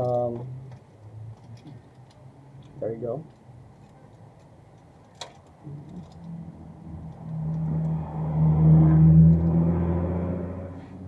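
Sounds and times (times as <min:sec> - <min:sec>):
vehicle engine passing by: 0:06.2 - 0:11.0.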